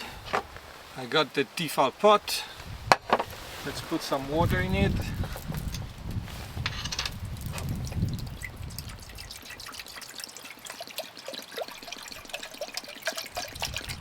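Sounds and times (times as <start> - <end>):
low wind rumble: 2.2 - 9.4, 13.4 - 14.0
water pouring into a pot: 7.2 - 14.0.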